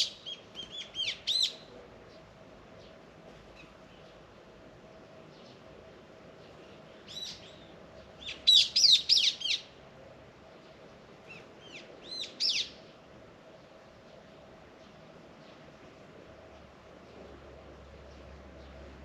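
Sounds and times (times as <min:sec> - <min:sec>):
songbird singing whistled notes: 0:00.0 - 0:01.6, 0:07.0 - 0:09.7, 0:11.3 - 0:12.8.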